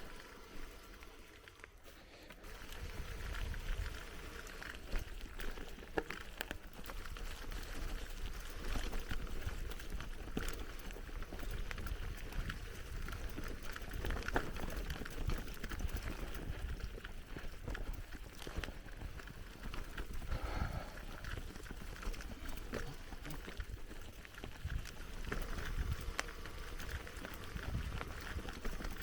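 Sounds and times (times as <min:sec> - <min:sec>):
bicycle tyres crunching on dirt: 0:00.0 - 0:29.0
bike rattling clicks: 0:00.0 - 0:29.0
wind rumble on microphone: 0:02.5 - 0:05.2, 0:23.6 - 0:29.0.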